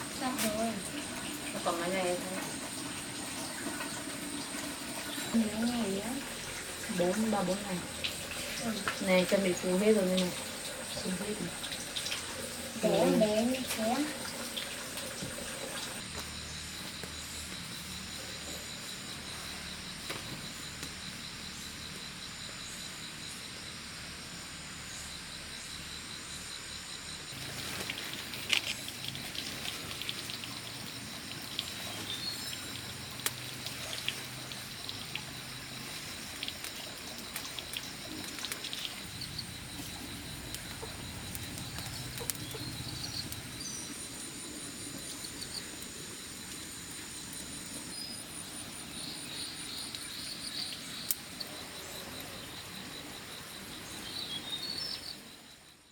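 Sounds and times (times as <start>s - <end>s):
insects trilling: 0.0s - 55.9s.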